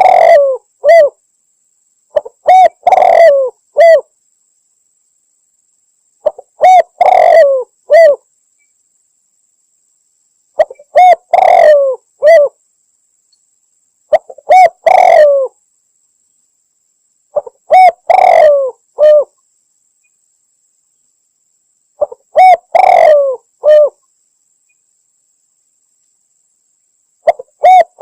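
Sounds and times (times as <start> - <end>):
dove cooing: 0.0 - 1.2, 2.1 - 4.1, 6.2 - 8.2, 10.6 - 12.6, 14.1 - 15.6, 17.4 - 19.4, 22.0 - 24.0, 27.2 - 28.0.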